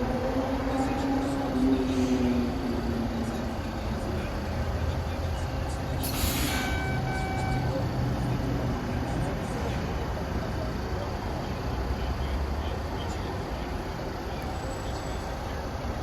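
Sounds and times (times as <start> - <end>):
subway train low rumble: 0.0 - 16.0
air hiss burst: 6.0 - 7.0
electronic tone: 6.6 - 7.8.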